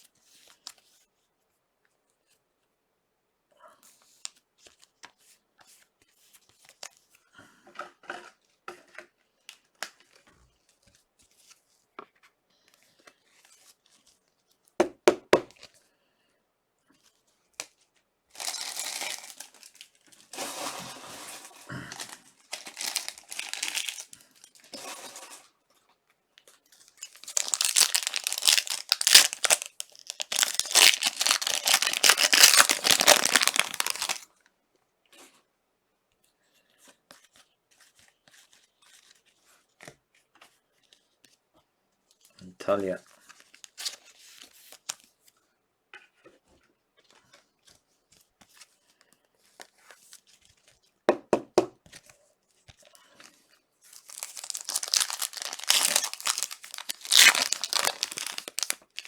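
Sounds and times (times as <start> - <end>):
wrappers tearing and crinkling: 18.4 - 25.3, 26.8 - 34.2, 53.9 - 59.0.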